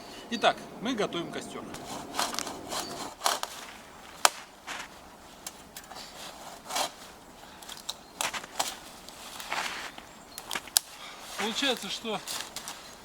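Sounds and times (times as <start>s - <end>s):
wooden branches snapping: 1.8s - 5.7s, 7.6s - 13.0s.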